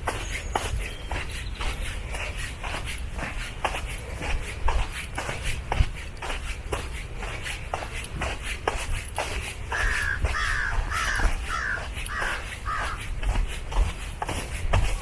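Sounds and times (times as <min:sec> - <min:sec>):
footsteps on trail: 0:00.0 - 0:15.0
bird harsh crow-like calls: 0:09.7 - 0:13.1.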